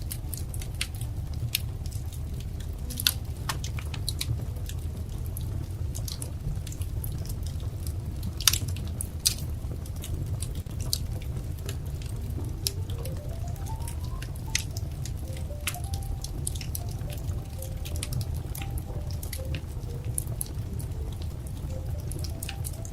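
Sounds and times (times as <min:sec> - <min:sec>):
low rumble of flames: 0:00.0 - 0:22.9
wood fire crackling and popping: 0:00.0 - 0:22.9
faint rising tone: 0:12.4 - 0:21.1.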